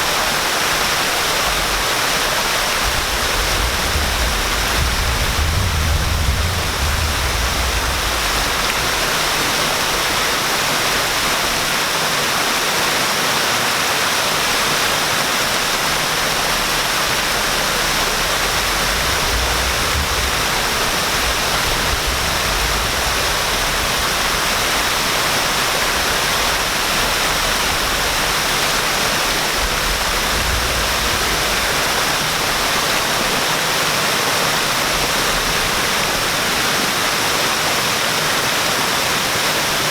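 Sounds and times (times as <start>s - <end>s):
waterfall rushing: 0.0s - 39.9s
deep low rumble: 1.4s - 10.0s, 15.8s - 32.7s.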